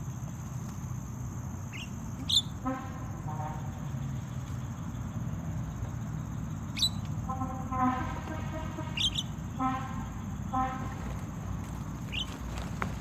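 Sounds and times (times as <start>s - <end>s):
nasal bird notes: 1.7s - 2.6s.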